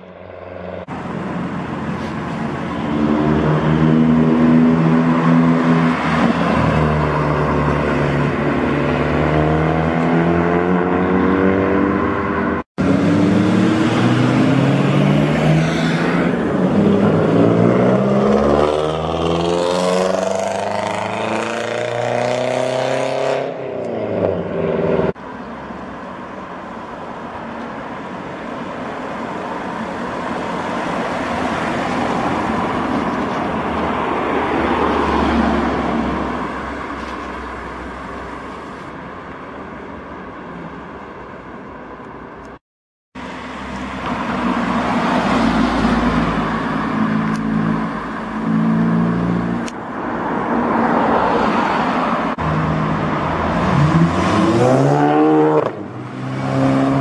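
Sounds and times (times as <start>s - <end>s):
car engines revving: 0.0s - 38.6s, 43.2s - 57.0s
car passing by: 30.4s - 38.0s, 43.4s - 48.0s, 48.8s - 57.0s.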